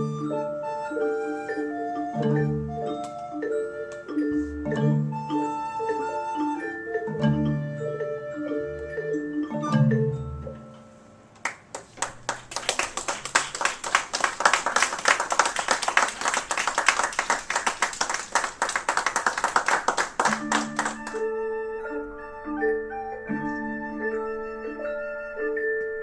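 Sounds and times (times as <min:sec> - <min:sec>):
xylophones playing: 0:00.0 - 0:11.2, 0:20.1 - 0:26.0
rapid hand clapping: 0:11.4 - 0:21.3.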